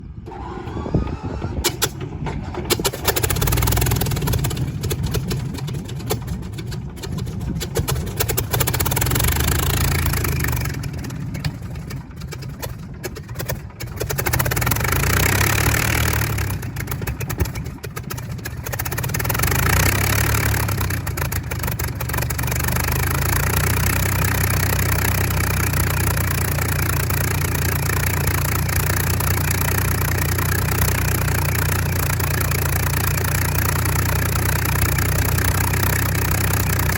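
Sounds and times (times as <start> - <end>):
aircraft piston engine running: 0.2 - 36.9.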